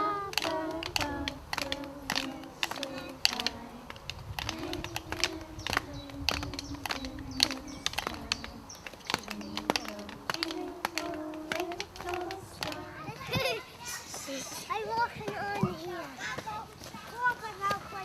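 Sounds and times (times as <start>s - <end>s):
children drumming: 0.0s - 15.8s
quiet children's voices: 4.5s - 18.0s.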